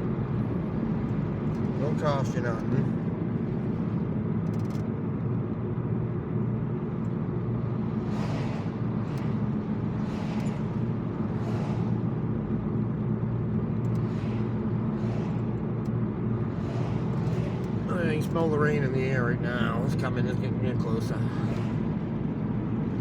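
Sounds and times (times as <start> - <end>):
car engine and road noise: 0.0 - 23.0
brief rushing whooshes: 7.9 - 12.7, 16.4 - 18.0.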